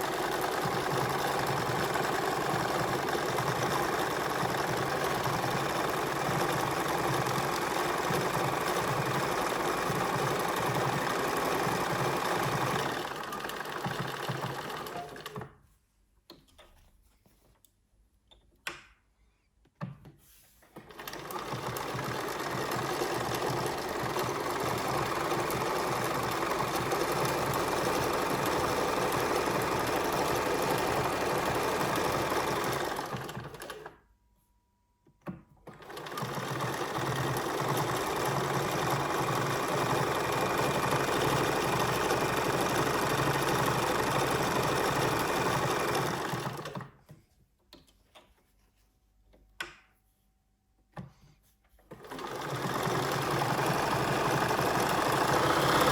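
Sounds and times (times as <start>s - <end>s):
sewing machine running: 0.0s - 15.5s, 20.8s - 34.0s, 35.6s - 47.0s, 51.9s - 55.9s.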